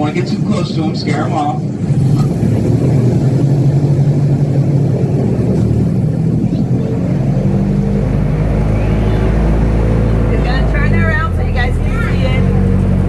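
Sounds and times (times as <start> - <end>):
airboat engine humming: 0.0 - 13.0.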